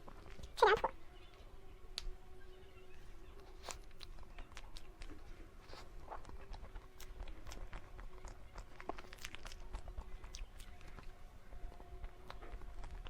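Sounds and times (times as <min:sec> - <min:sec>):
chewing mouth noises: 0:00.0 - 0:01.3, 0:03.2 - 0:13.0
faint steady hum: 0:00.0 - 0:13.0.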